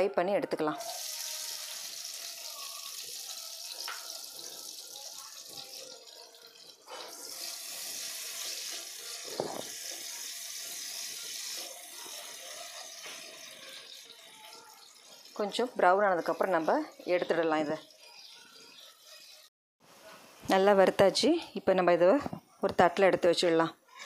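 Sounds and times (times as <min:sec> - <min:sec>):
vegetables sizzling in hot oil: 0:00.8 - 0:19.5.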